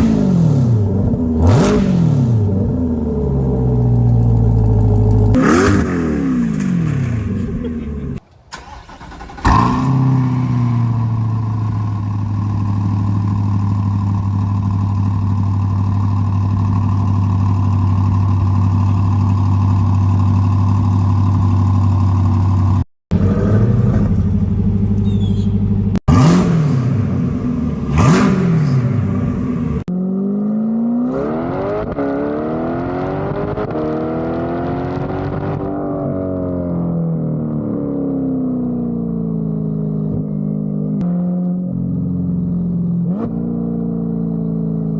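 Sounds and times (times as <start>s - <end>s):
car engine revving: 0.0s - 35.7s
car engine idling: 2.4s - 29.9s.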